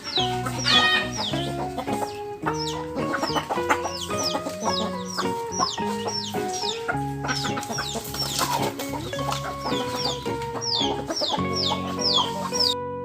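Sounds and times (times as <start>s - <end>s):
chicks peeping: 0.0s - 12.9s
background music: 0.0s - 13.0s.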